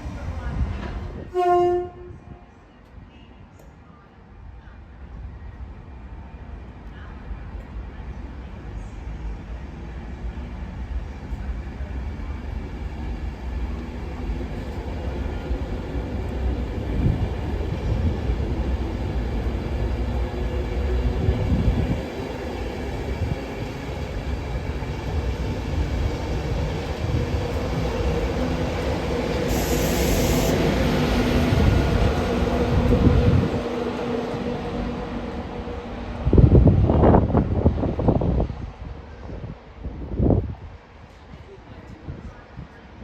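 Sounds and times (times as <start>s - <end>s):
train rumbling: 0.0s - 3.0s, 4.4s - 43.0s
brief hiss: 29.4s - 30.8s.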